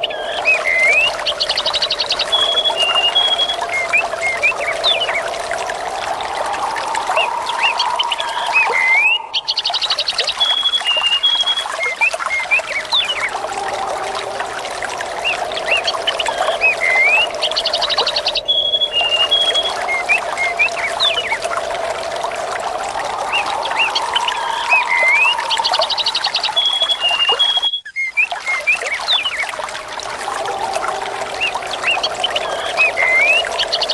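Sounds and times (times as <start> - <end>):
birds chirping and trilling: 0.0 - 33.9
trickling water: 0.0 - 33.9.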